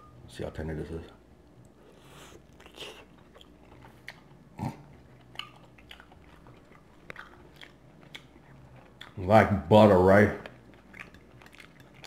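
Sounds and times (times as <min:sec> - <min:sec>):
chewing mouth sounds: 0:01.6 - 0:09.3, 0:10.4 - 0:12.0
small clicks while chewing: 0:05.0 - 0:09.2, 0:10.4 - 0:12.0.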